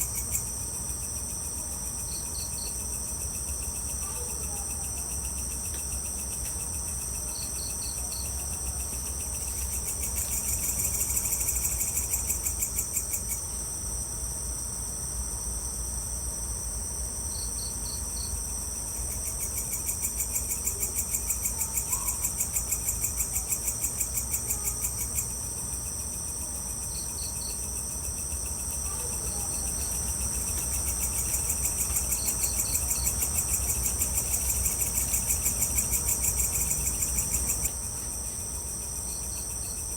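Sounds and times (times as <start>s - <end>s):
cricket chirps: 0.0s - 39.9s
high-pitched insect trill: 0.0s - 39.9s
lower pulsing insect trill: 0.0s - 39.9s.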